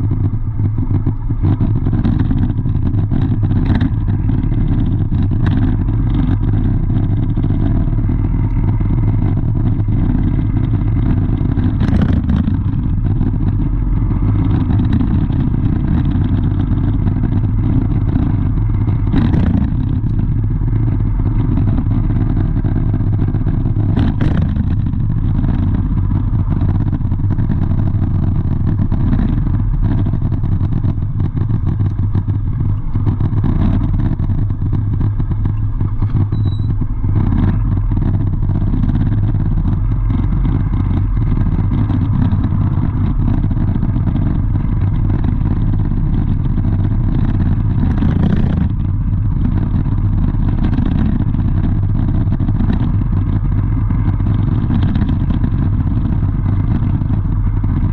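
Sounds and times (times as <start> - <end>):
vehicle engine running: 0.0 - 57.9.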